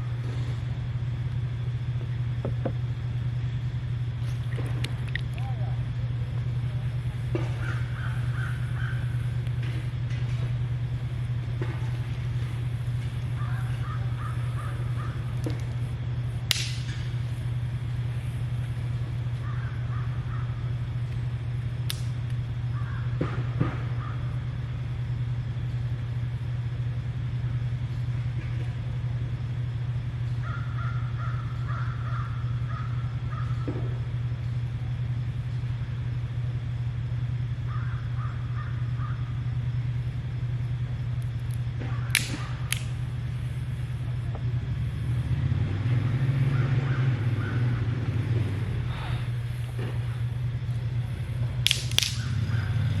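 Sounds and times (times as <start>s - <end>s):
steady low hum: 0.0s - 53.0s
bird calls: 7.3s - 9.8s, 13.0s - 15.9s, 19.1s - 21.0s, 22.6s - 24.4s, 30.2s - 34.0s, 37.6s - 39.5s, 46.4s - 48.0s
sharp clicks: 16.5s - 17.0s, 21.9s - 22.4s, 41.2s - 43.0s, 51.6s - 52.5s.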